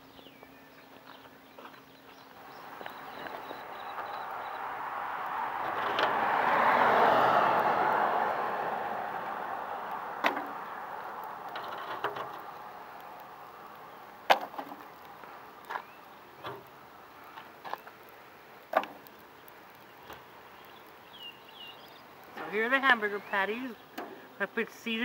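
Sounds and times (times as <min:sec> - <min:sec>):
sharp clicks and knocks: 0:10.2 - 0:12.6, 0:18.7 - 0:20.3.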